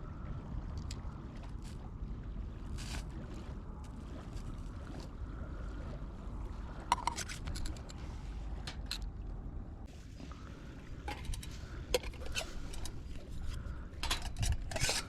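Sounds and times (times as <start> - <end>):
low outdoor rumble: 0.0 - 15.0
metal camp gear clinking: 6.9 - 8.0, 11.0 - 15.0.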